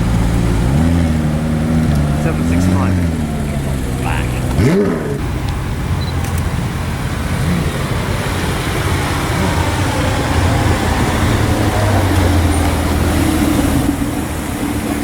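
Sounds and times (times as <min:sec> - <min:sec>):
car engine running at low revs: 0:00.0 - 0:15.0
traffic noise: 0:00.0 - 0:15.0.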